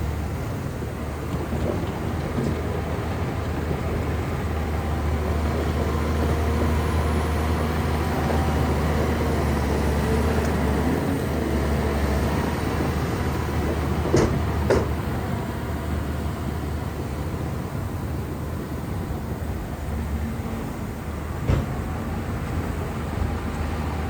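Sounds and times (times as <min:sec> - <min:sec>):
bulldozer diesel engine: 0:00.0 - 0:24.0.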